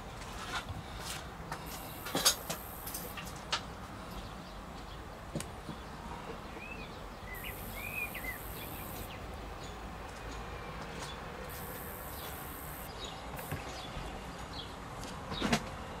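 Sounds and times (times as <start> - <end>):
outdoor background noise: 0.0 - 16.0
small bird chirping: 6.4 - 9.8, 11.5 - 14.0.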